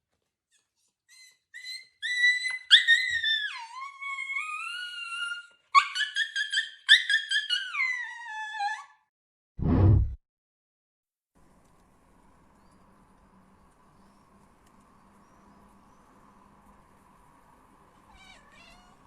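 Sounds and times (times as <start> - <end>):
dog whining: 0.6 - 9.0
dog yelping: 1.1 - 9.0.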